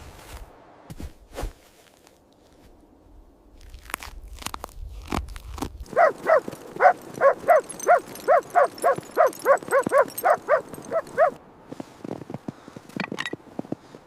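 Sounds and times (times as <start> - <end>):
dog barking: 5.9 - 11.4.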